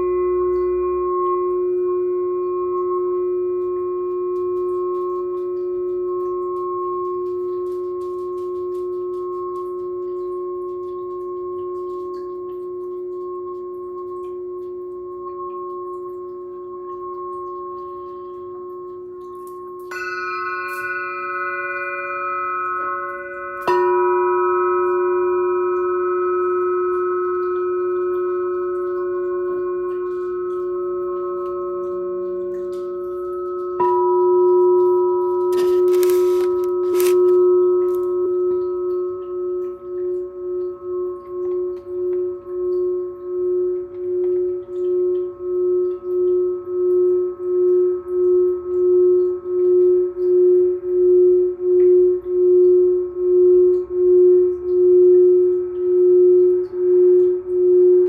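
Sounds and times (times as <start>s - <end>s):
crystal singing bowl ringing: 0.0s - 58.0s
glass singing pyramid ringing: 0.0s - 58.0s.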